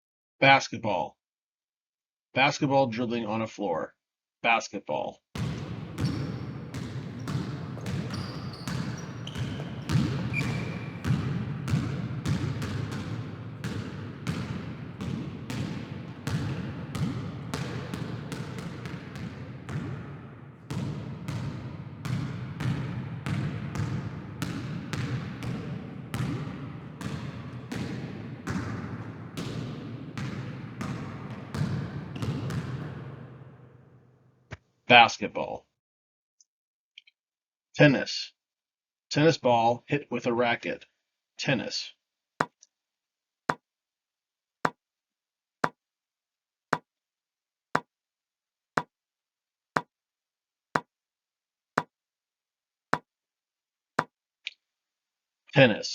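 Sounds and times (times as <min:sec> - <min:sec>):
basketball bouncing on hard floor: 0:05.4 - 0:33.4.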